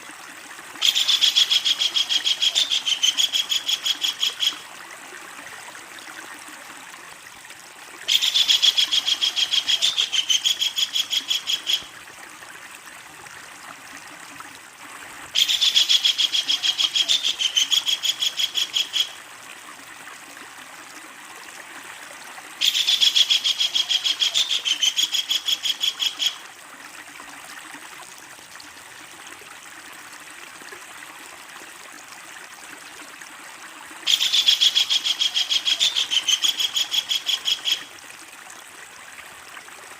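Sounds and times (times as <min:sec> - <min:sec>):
kingfisher rattling call: 0:00.8 - 0:04.6, 0:08.1 - 0:11.9, 0:22.6 - 0:26.4, 0:34.1 - 0:37.9.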